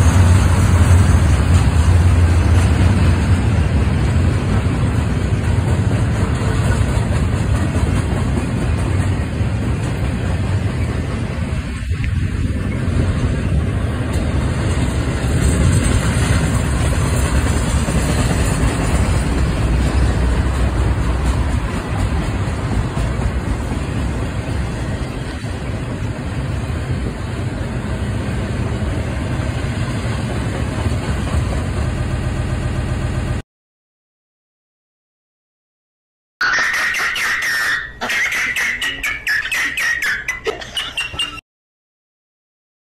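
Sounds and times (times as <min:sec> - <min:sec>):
steel wheels rumbling on rails: 0:00.0 - 0:33.4.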